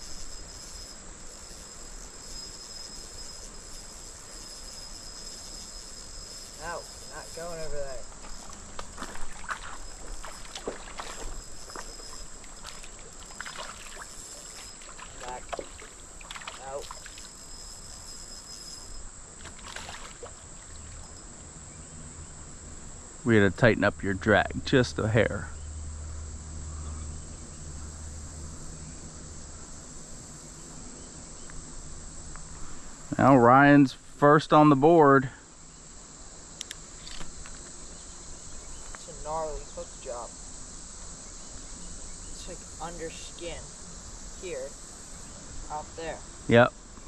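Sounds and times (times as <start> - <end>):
crickets trilling: 0.0 - 47.0
high insect drone: 0.0 - 47.0
creek water splashing: 8.1 - 17.4, 19.4 - 21.0.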